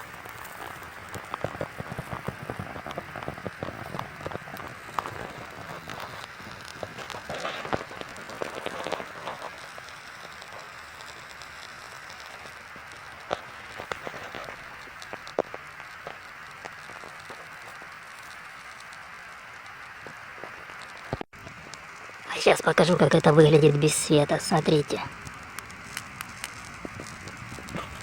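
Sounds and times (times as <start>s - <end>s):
charcoal crackles and pops: 0.0s - 28.0s
meat sizzling over charcoal: 0.0s - 28.0s.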